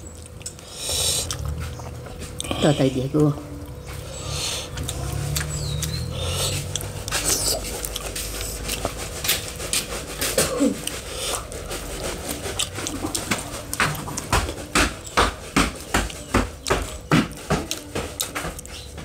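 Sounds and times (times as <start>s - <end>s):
chewing and lip-smacking: 0.0s - 19.0s.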